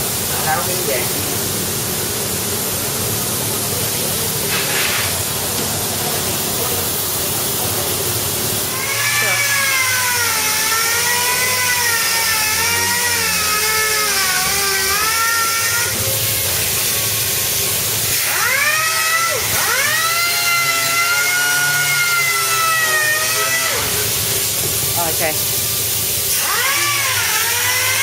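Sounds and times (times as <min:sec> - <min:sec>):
power tool motor whining: 0:08.7 - 0:16.5, 0:18.1 - 0:24.2, 0:26.3 - 0:28.0.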